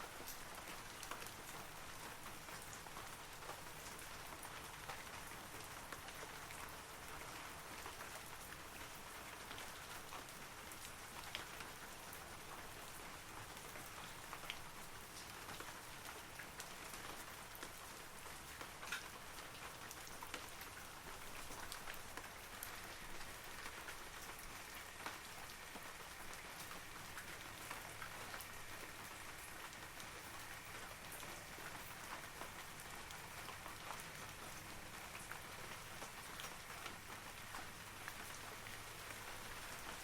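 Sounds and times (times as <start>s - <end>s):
rain pattering on trees: 0.0s - 40.0s.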